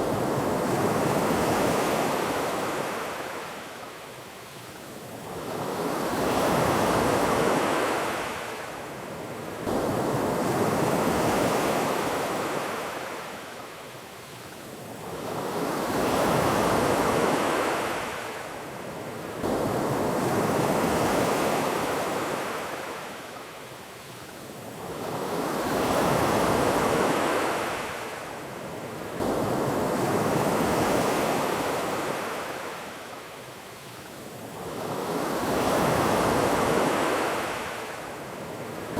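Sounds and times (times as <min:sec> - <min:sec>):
ocean waves washing onto beach: 0:00.0 - 0:38.9.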